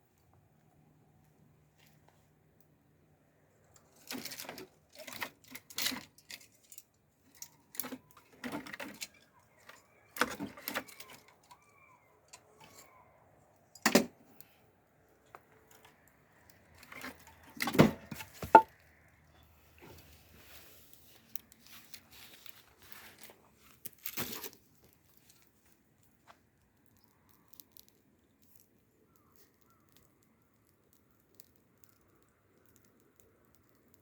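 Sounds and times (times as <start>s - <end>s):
clattering and knocking: 17.0s - 18.7s.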